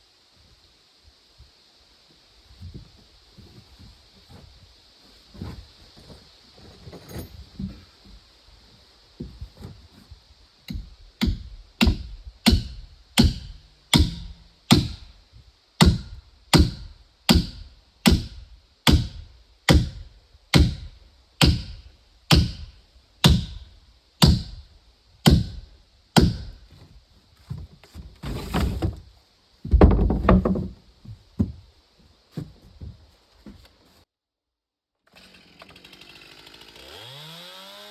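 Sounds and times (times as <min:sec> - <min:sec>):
chopping blows on wood: 0:10.7 - 0:15.1, 0:15.8 - 0:23.6, 0:24.2 - 0:24.6, 0:25.3 - 0:25.6, 0:26.2 - 0:26.6.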